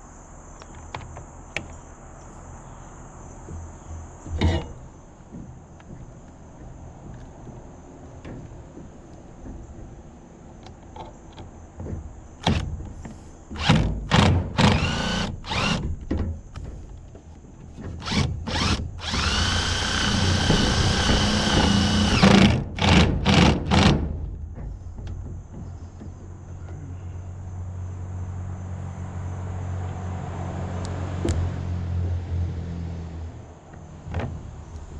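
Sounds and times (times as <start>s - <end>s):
power drill driving screws: 13.6s - 15.8s, 18.0s - 24.0s.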